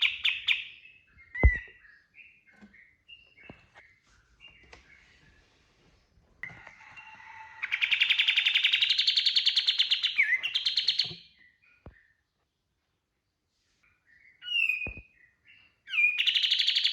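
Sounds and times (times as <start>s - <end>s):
songbird singing fast trill: 14.2s - 16.9s.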